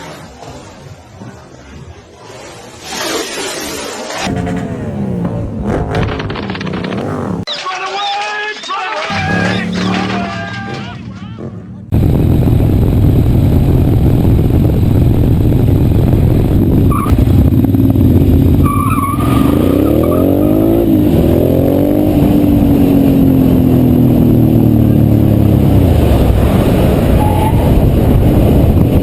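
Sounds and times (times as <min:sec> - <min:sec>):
motorcycle engine revving: 0:02.8 - 0:07.5, 0:09.1 - 0:29.0
wind rumble: 0:11.8 - 0:29.0.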